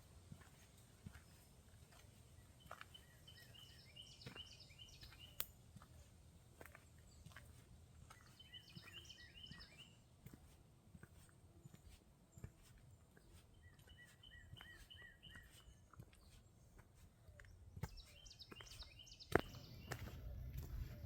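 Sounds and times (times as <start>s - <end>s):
footsteps on a trail: 0.0s - 21.0s
small birds chirping: 0.0s - 21.0s.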